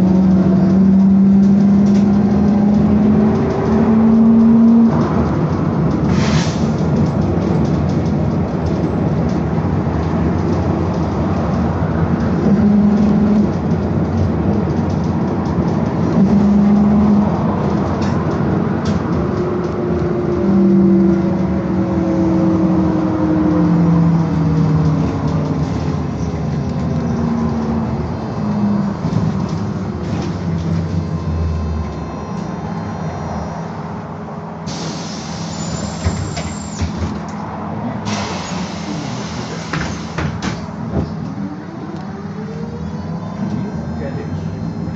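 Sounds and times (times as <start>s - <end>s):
road and running noise: 0.0s - 44.9s.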